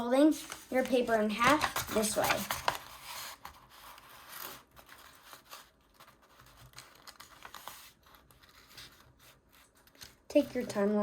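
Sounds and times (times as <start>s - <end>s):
paper rustling and crinkling: 0.2s - 11.0s.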